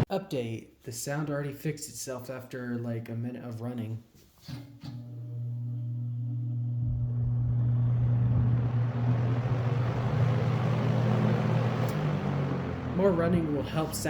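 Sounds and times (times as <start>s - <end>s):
electric motor hum: 4.9s - 14.0s.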